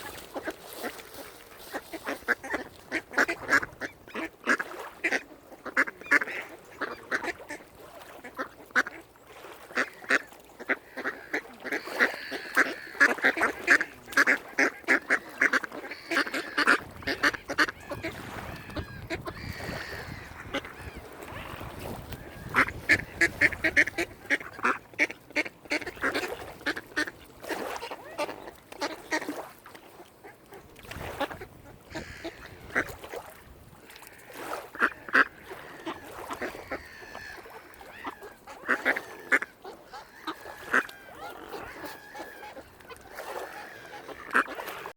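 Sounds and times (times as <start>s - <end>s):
waterfowl calling: 0.0s - 44.9s.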